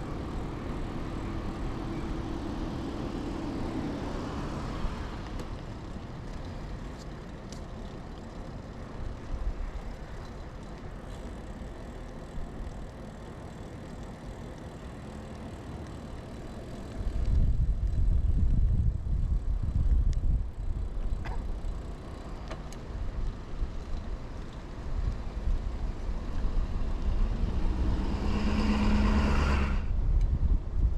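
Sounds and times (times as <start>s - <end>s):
bicycle tyre rumble on pavement: 0.0s - 30.9s
wind on microphone: 17.0s - 21.2s, 24.9s - 30.9s.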